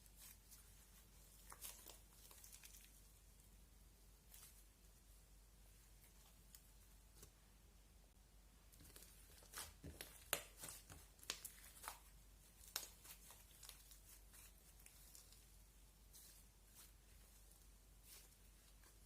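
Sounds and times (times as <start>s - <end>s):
slime crackling and popping: 8.8s - 15.4s.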